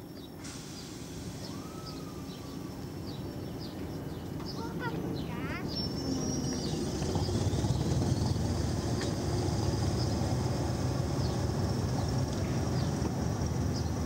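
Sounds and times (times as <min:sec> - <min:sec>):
train wheels rumbling on rails: 0:00.2 - 0:14.0.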